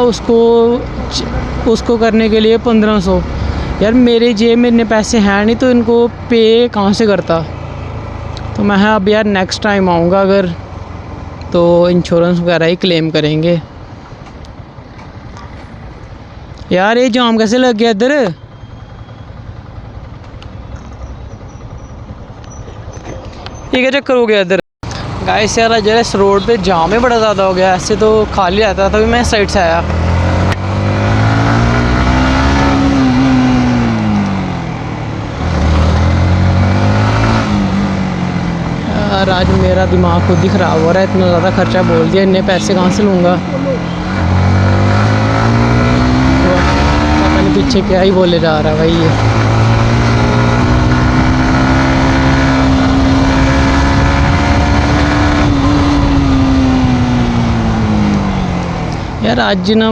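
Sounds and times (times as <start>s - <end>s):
motorcycle engine running: 18.3s - 23.7s, 24.8s - 59.9s.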